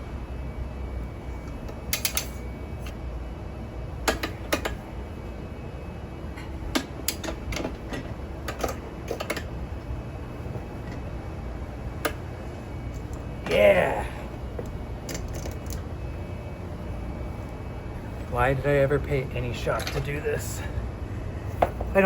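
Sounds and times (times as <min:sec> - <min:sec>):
steady low hum: 0:00.0 - 0:22.0
tools clicking on wheel rim: 0:01.5 - 0:03.0, 0:04.0 - 0:04.8, 0:06.4 - 0:09.5.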